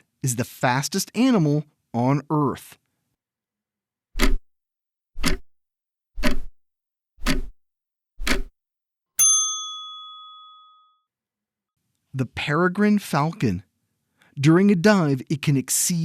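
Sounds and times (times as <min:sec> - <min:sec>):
clock ticks: 0:04.2 - 0:04.4, 0:05.2 - 0:05.5, 0:06.2 - 0:06.5, 0:07.2 - 0:07.6, 0:08.2 - 0:08.5
bell ding: 0:09.2 - 0:11.0.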